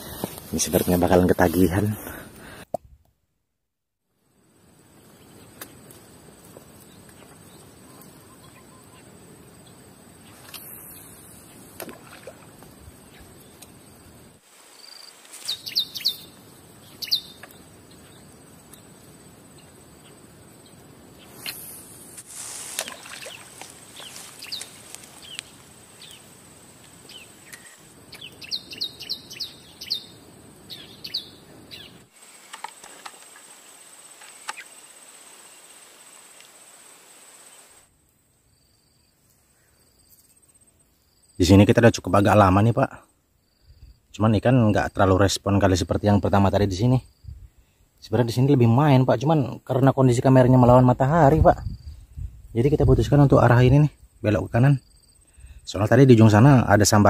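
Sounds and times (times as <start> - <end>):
steady outdoor hiss: 0.0 - 2.8, 4.0 - 57.0
birds chirping: 6.8 - 14.1, 14.8 - 22.1, 22.8 - 32.1.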